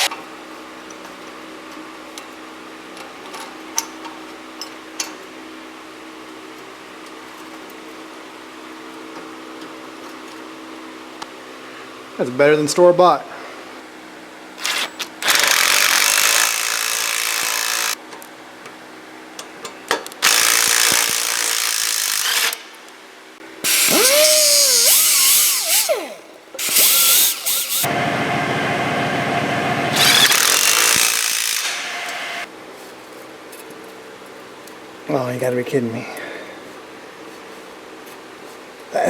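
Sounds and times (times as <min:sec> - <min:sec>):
handheld power tool motor: 0:14.6 - 0:18.0, 0:20.2 - 0:22.6, 0:23.6 - 0:32.5.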